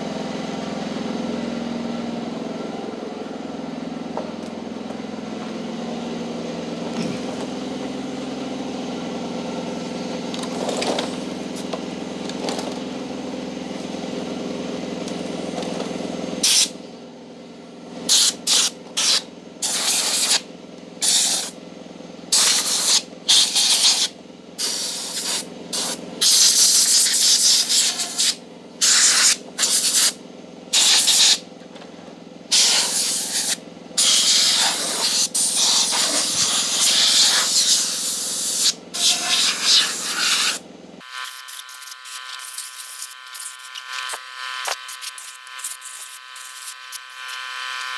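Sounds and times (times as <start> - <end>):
air compressor motor running: 0.0 - 47.9
compressed air hissing: 16.4 - 16.7, 18.1 - 20.4, 21.0 - 21.6, 22.4 - 30.2, 30.8 - 31.4, 32.5 - 40.6, 41.4 - 47.3.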